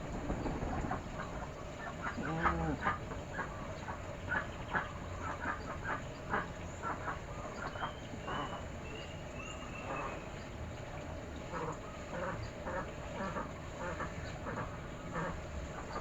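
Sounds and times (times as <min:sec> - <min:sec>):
birds chirping: 0:00.0 - 0:10.6.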